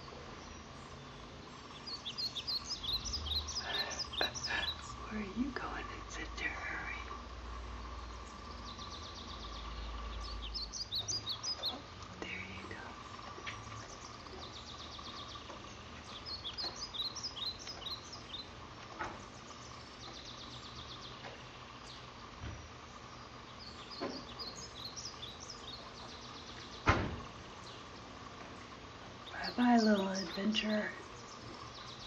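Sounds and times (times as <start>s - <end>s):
faint steady hum: 0.0s - 32.0s
small birds chirping: 0.0s - 32.0s
sharp thump: 26.8s - 27.3s.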